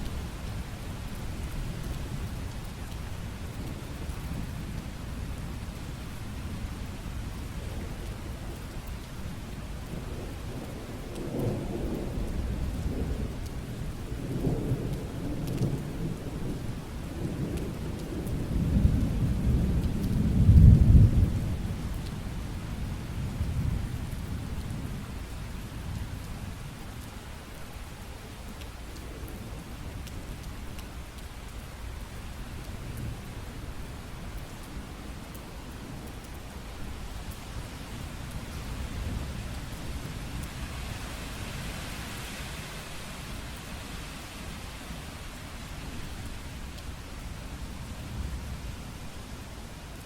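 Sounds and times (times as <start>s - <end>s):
steady rain hissing: 0.0s - 50.0s
thunder rumbling: 10.0s - 21.8s.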